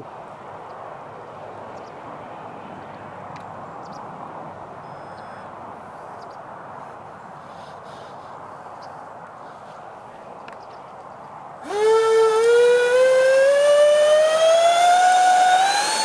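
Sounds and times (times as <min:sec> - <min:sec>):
model jet ducted fans rushing: 0:11.6 - 0:16.0.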